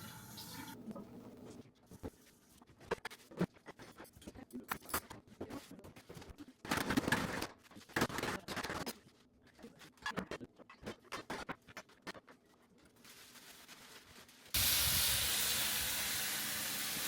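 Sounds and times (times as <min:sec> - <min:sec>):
packaging being handled: 0:12.9 - 0:14.6.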